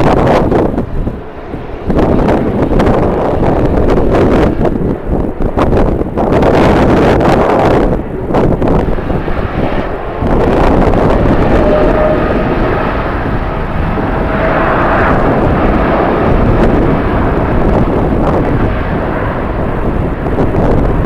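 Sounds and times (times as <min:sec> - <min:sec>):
jet engines running: 0:00.0 - 0:21.0
wind buffeting microphone: 0:00.0 - 0:21.0
faint steady whine: 0:07.9 - 0:20.9.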